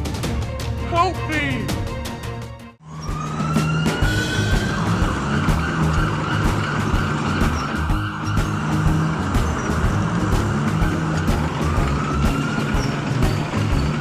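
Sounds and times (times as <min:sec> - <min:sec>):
rhythmic background music: 0:00.0 - 0:14.0
rising whine: 0:02.8 - 0:14.0
cartoon engine rumble: 0:03.0 - 0:14.0.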